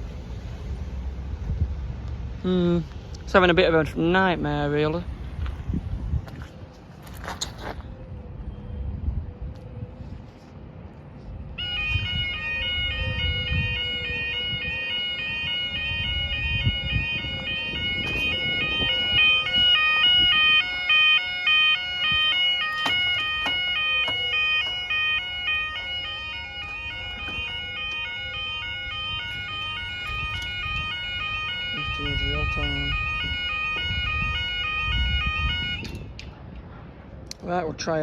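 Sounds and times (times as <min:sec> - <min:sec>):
level crossing alarm: 0:11.6 - 0:36.1.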